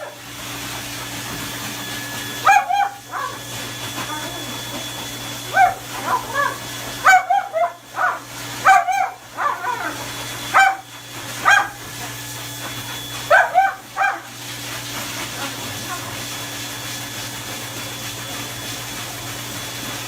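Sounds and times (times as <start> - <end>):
dog yipping: 2.4 - 3.4, 5.5 - 11.8, 13.2 - 14.3.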